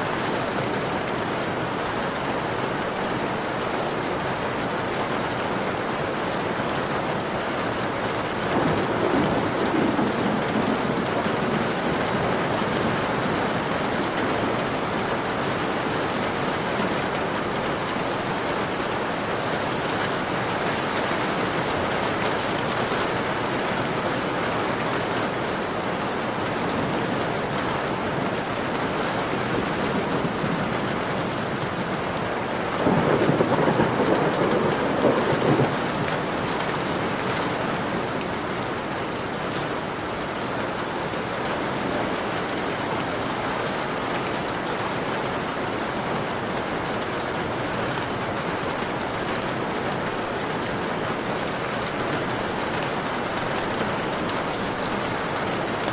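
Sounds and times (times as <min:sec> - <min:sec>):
heavy rain on a window: 0:00.0 - 0:55.9
thunder rolling: 0:08.5 - 0:14.6, 0:32.8 - 0:36.6.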